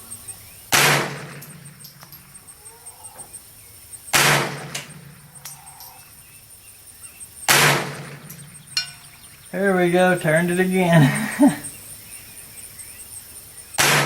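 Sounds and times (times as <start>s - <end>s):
rifle shots: 0.7s - 1.4s, 4.2s - 4.8s, 13.8s - 14.0s
echo of shots: 0.7s - 1.5s, 4.2s - 4.8s.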